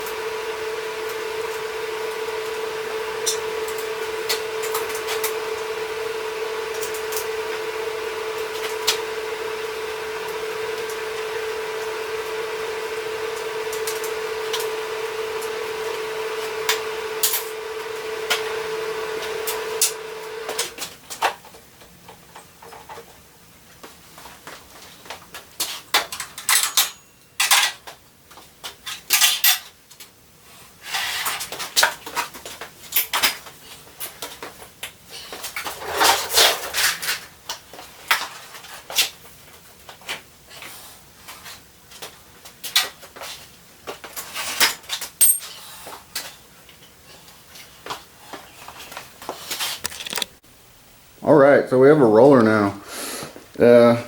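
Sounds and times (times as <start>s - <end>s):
machine whine: 0.0s - 20.9s.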